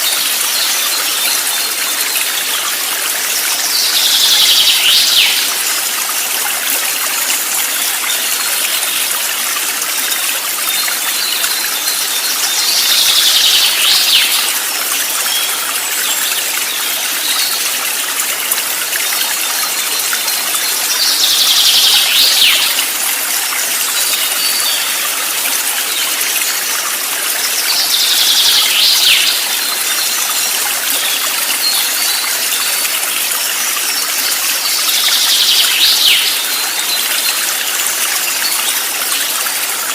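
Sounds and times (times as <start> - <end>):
flowing stream rushing: 0.0 - 39.9.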